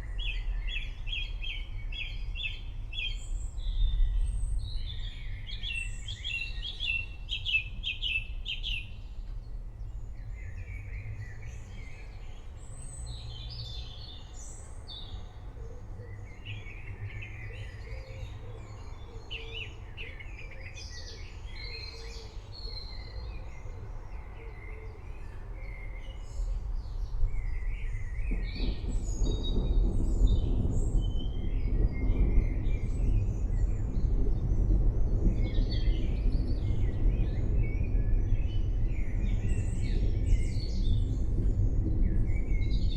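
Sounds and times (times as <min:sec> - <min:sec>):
birds singing and chirping: 0:00.0 - 0:42.9
distant thunder rumbling: 0:26.8 - 0:42.9.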